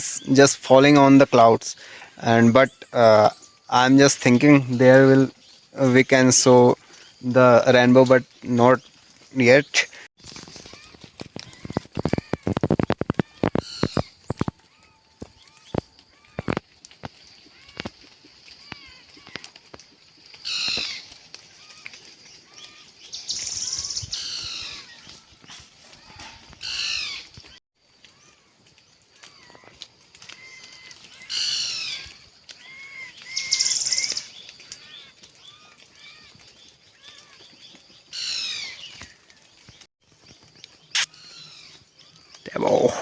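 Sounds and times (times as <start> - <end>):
songbird singing: 0.0 - 43.0
soft bird chirps: 20.2 - 43.0.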